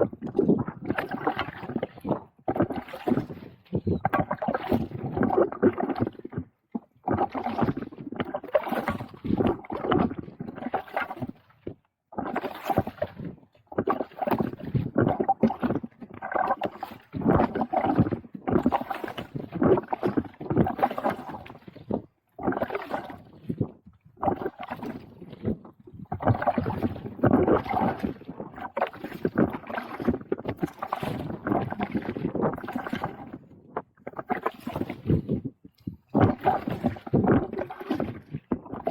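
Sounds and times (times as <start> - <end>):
kayak paddle strokes in water: 0.0 - 38.9
water splashing: 0.2 - 11.4, 12.2 - 38.9.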